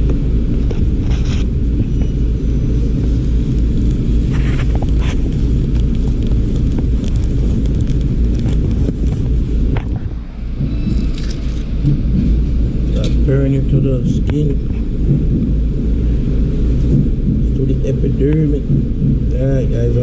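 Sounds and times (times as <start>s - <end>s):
steady low rumble: 0.0s - 20.0s
faint clicks and scrapes: 0.6s - 12.4s.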